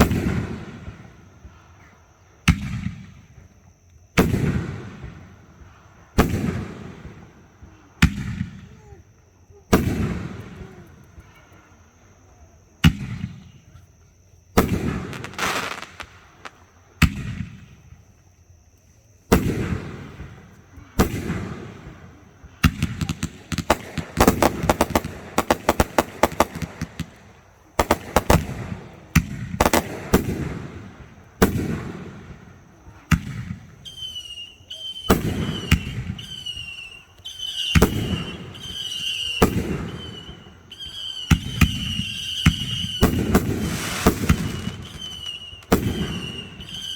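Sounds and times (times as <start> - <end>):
fireworks bangs echoing: 0.0 - 1.1, 6.2 - 7.3, 14.6 - 17.8, 19.3 - 46.9
fireworks crackling: 14.6 - 16.7, 19.4 - 32.6, 33.2 - 46.9.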